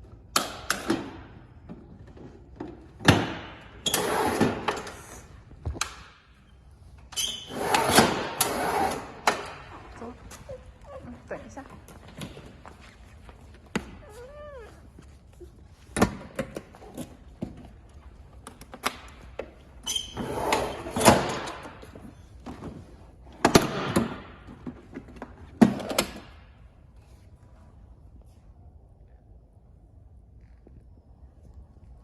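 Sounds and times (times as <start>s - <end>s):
brief squeak: 19.8s - 20.5s.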